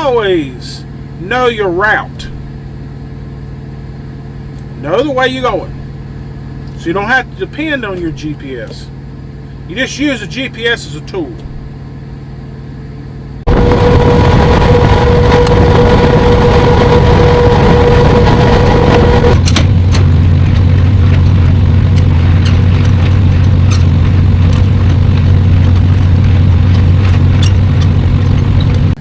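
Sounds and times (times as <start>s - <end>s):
deep drone: 0.0s - 29.0s
steady whine: 0.0s - 29.0s
truck engine and road noise: 0.0s - 29.0s.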